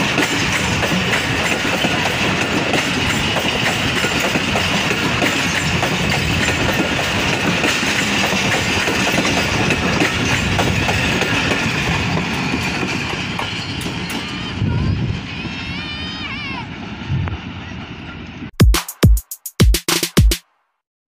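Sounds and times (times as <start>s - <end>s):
train wheels clattering over rail joints: 0.0s - 14.5s.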